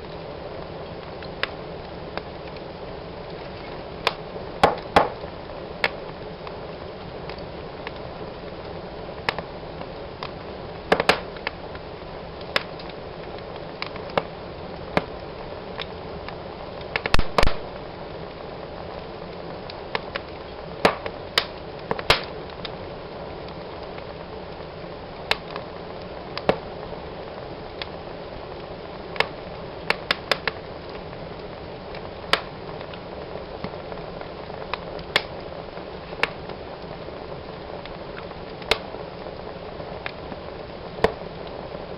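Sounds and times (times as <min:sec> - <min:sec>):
fire crackling in a fireplace: 0:00.0 - 0:41.9.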